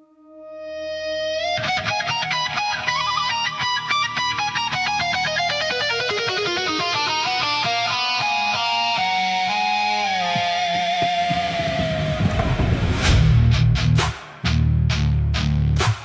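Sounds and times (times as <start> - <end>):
fast plucked electric guitar: 1.2 - 12.9.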